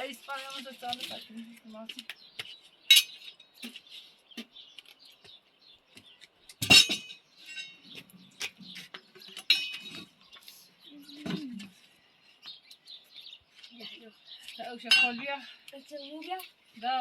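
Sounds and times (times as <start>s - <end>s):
small birds chirping: 0.0s - 17.0s
sharp clinks: 6.6s - 7.9s.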